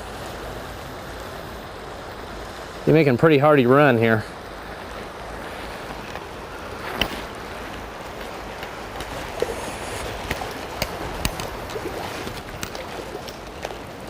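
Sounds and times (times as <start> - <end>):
river water rushing: 0.0 - 14.0
wind: 0.0 - 14.0
sharp clicks or splashes: 6.9 - 13.9.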